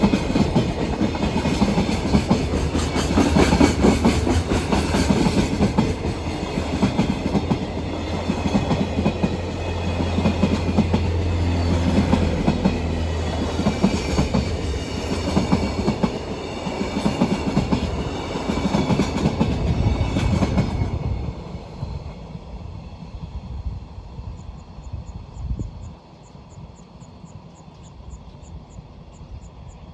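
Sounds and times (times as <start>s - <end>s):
freight train wheels clattering: 0.0s - 22.1s
train rumble: 0.0s - 29.9s.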